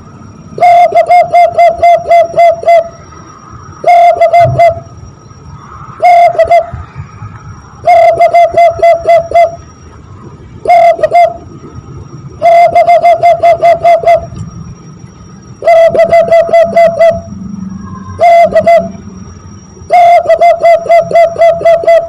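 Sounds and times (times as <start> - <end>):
hand whistle dove cooing: 0.6 - 3.0, 3.8 - 4.9, 6.0 - 6.8, 7.8 - 9.6, 10.6 - 11.4, 12.4 - 14.4, 15.6 - 19.0, 19.9 - 22.0.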